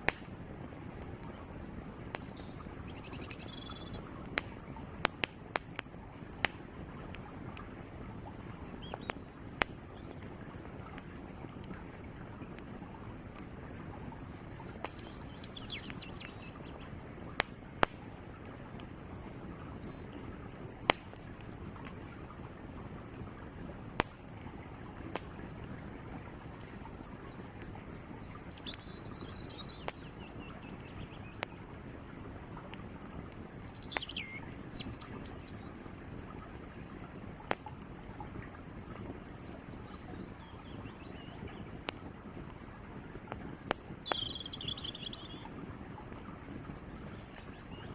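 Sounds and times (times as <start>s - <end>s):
campfire crackling and popping: 0.0s - 47.9s
birds chirping: 1.0s - 5.0s, 8.3s - 12.7s, 13.7s - 17.0s, 19.4s - 23.3s, 24.6s - 32.1s, 33.3s - 37.2s, 38.8s - 47.9s
creek rushing: 6.2s - 47.9s.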